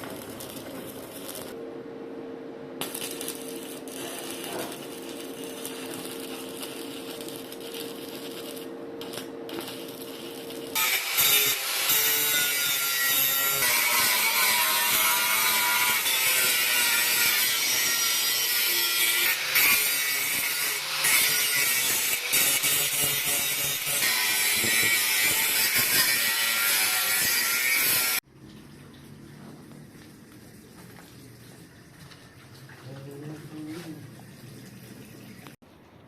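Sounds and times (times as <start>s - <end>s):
angle grinder grinding steel: 2.8s - 28.2s.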